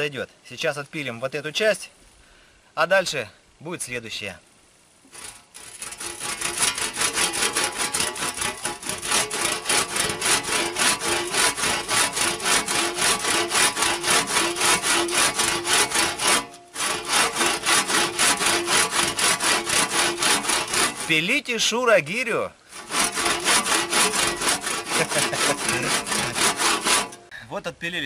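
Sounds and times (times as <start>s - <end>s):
hand saw cutting log: 5.1s - 21.3s, 22.7s - 27.3s.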